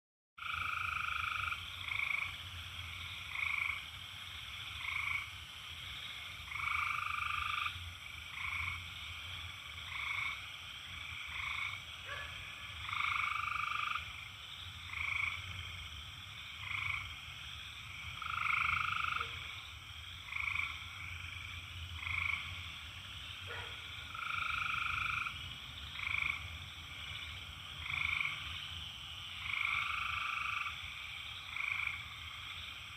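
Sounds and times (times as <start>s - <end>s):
cicadas droning: 0.4s - 32.9s
frogs calling: 0.4s - 32.9s.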